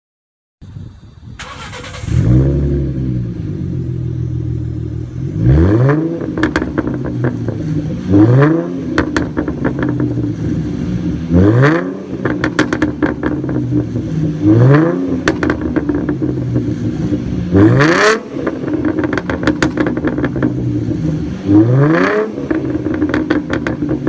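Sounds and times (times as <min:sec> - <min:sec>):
car engine idling and revving: 0:00.7 - 0:24.0
exhaust crackles and pops: 0:05.9 - 0:10.8, 0:11.7 - 0:21.4, 0:22.4 - 0:24.0.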